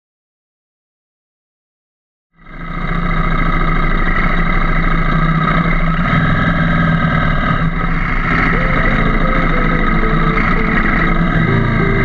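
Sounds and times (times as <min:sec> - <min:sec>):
motorcycle engine running: 0:06.8 - 0:12.0.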